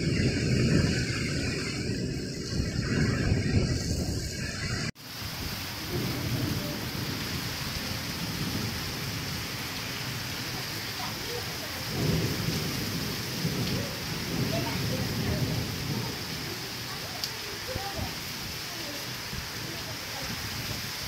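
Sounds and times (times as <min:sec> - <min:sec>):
heavy rain on tiled roofs: 0:00.0 - 0:21.0
low thunder rumble: 0:00.0 - 0:21.0.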